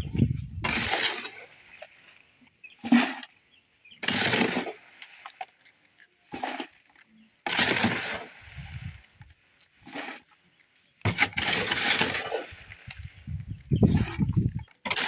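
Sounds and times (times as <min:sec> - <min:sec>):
scraping wet concrete: 0:00.2 - 0:01.5, 0:02.8 - 0:03.3, 0:04.0 - 0:04.8, 0:06.3 - 0:08.9, 0:09.8 - 0:10.3, 0:11.0 - 0:13.0, 0:13.8 - 0:15.0.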